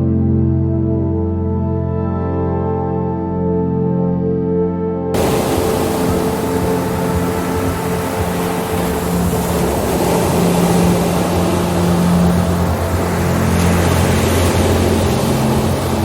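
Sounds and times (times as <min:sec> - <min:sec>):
steady wash of noise: 0:05.2 - 0:16.0.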